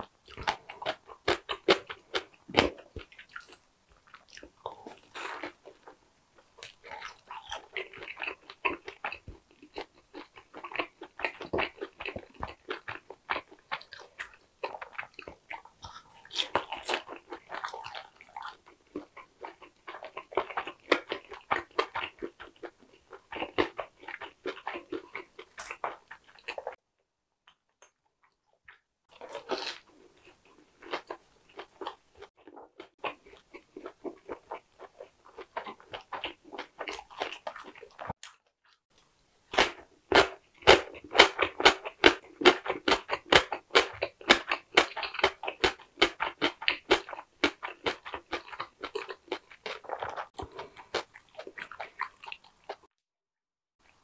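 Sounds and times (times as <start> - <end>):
crunchy chewing: 0.0 - 26.8, 27.5 - 38.4, 39.0 - 52.9.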